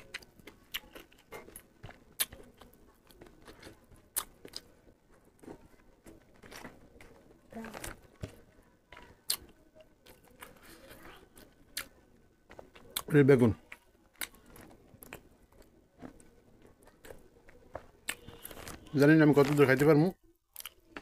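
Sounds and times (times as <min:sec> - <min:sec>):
sharp chewing clicks: 0:00.0 - 0:04.8.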